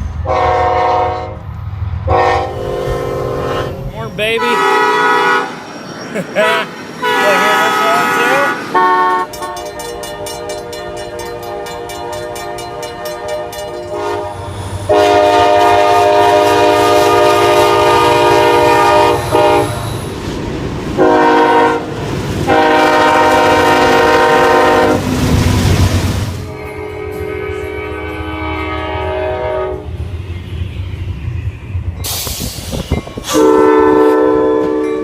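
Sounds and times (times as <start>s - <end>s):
locomotive horn blasts: 0.2s - 1.4s, 2.1s - 5.6s, 7.0s - 9.9s, 10.5s - 19.8s, 21.0s - 21.9s, 22.5s - 25.0s, 26.4s - 30.0s, 33.3s - 35.0s.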